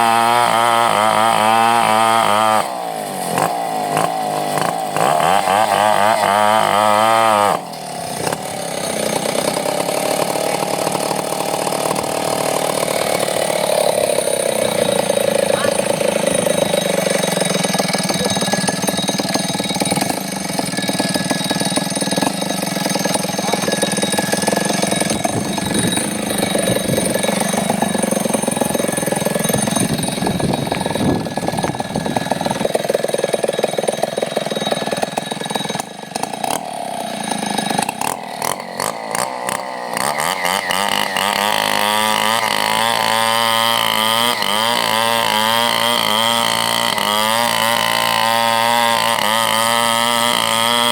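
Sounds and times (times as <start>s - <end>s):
chainsaw running: 0.0s - 50.9s.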